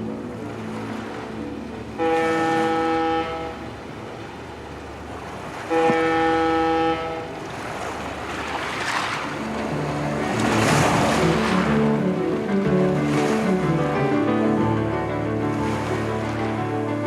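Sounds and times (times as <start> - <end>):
long horn-like tones: 2.0 - 3.8, 5.7 - 7.4.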